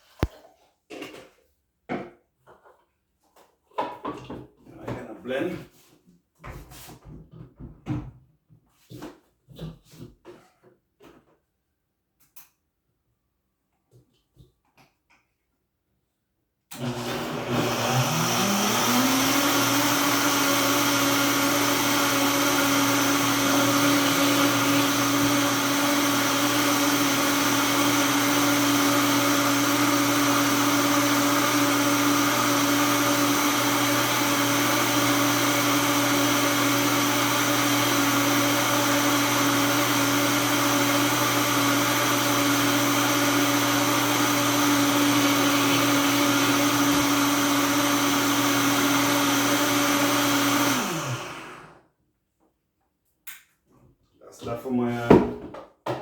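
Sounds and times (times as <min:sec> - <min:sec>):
blender motor running: 0:16.7 - 0:51.8.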